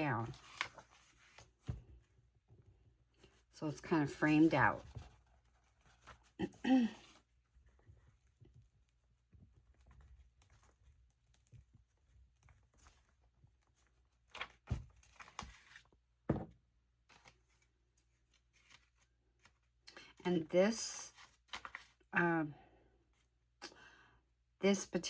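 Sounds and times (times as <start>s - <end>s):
paper handling noises: 0.2s - 1.8s, 4.2s - 7.2s, 17.1s - 19.7s, 21.1s - 22.0s
paper rustling and rubbing: 0.2s - 1.8s, 4.3s - 7.2s.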